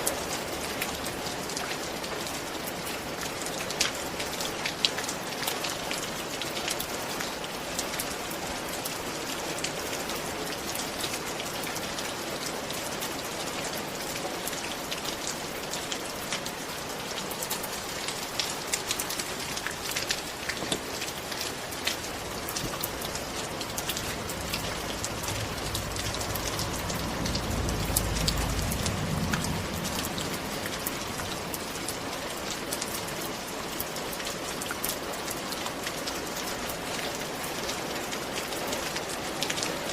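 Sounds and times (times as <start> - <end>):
rain drops pattering: 0.0 - 39.9
low rumble: 22.9 - 31.5.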